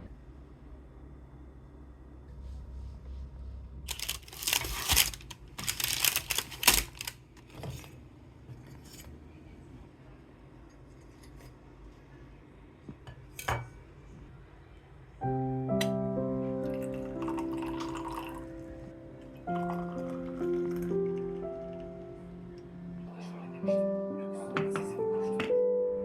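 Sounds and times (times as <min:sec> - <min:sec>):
kitchen clattering and scraping: 0:03.9 - 0:09.2
soft background music: 0:15.2 - 0:26.0.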